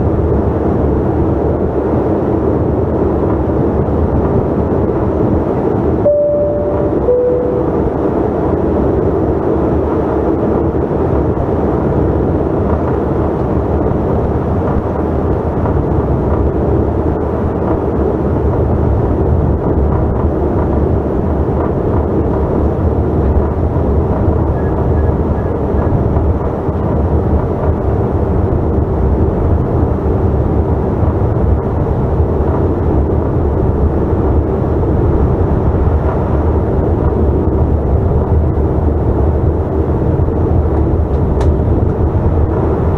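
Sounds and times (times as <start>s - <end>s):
jet cabin engine rumble: 10.0s - 42.9s.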